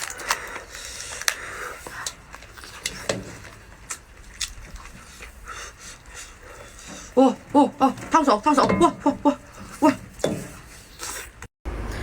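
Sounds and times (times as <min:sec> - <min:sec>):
lobster shell cracking: 0:00.0 - 0:05.2.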